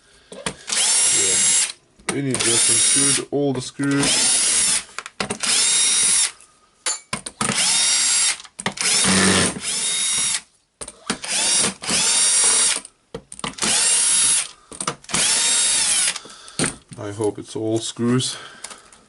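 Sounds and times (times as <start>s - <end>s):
drill-driver motor whine: 0.7s - 1.8s, 5.4s - 6.3s, 7.5s - 10.4s, 11.2s - 12.8s, 13.6s - 14.5s, 15.1s - 16.2s.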